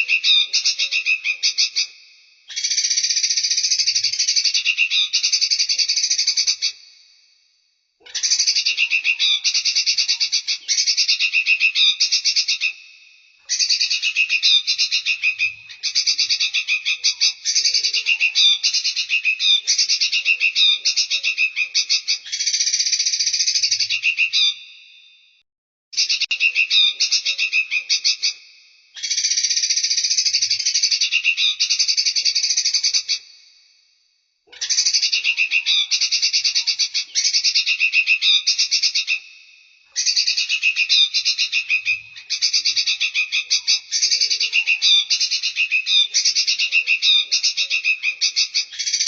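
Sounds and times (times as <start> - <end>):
songbird fast chattering: 2.5 - 6.8, 8.1 - 12.8, 13.5 - 24.6, 29.0 - 33.2, 40.0 - 49.0.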